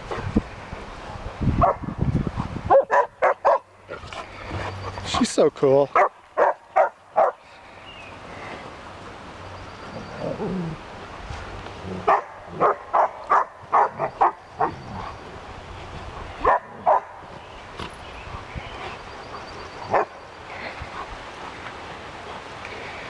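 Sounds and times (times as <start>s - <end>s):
dog barking: 1.6s - 1.8s, 2.7s - 3.7s, 6.0s - 7.4s, 12.1s - 14.8s, 16.4s - 17.2s.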